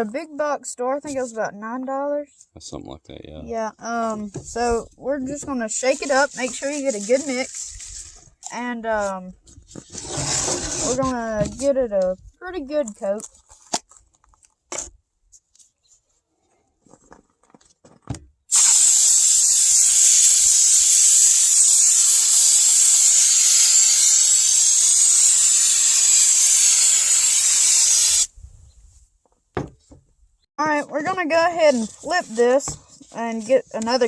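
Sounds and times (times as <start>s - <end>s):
aerosol can spraying hiss: 18.5s - 28.4s.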